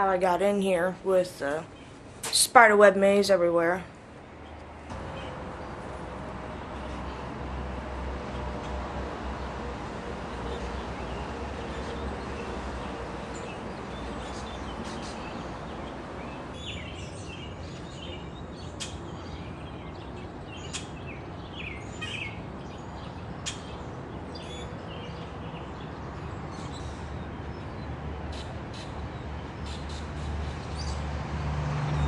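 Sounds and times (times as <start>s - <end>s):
small birds chirping: 10.2s - 31.0s.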